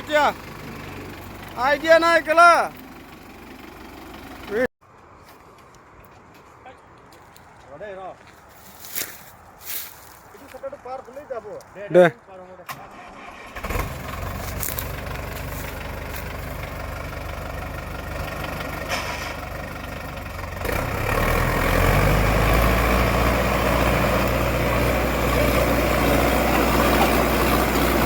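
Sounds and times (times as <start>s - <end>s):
tractor diesel engine revving: 0.0s - 4.7s, 12.7s - 28.0s.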